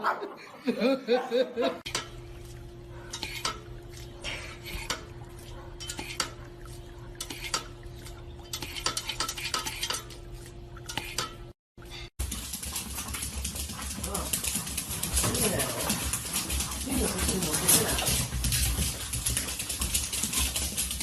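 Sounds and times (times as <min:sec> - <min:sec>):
dishes clicking and clattering: 0:01.8 - 0:11.5
steady low hum: 0:01.9 - 0:21.0.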